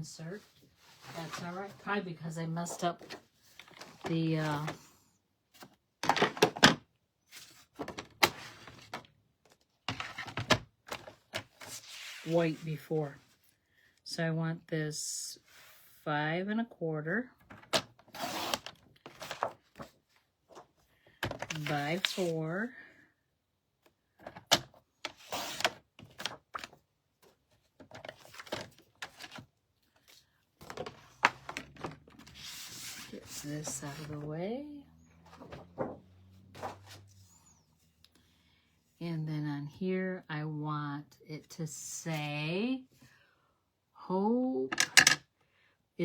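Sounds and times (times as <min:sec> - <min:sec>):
paper rustling and sliding: 0:11.0 - 0:12.7, 0:18.1 - 0:20.6, 0:21.5 - 0:22.4, 0:30.0 - 0:34.3, 0:35.2 - 0:37.5.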